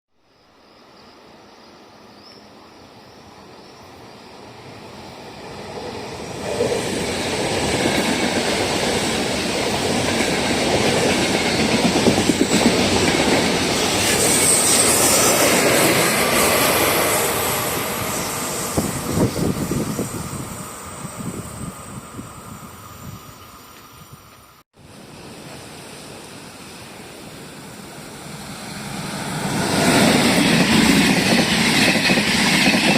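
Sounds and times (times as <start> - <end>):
train passing: 0.3 - 32.9
high wheel squeal: 13.7 - 24.1.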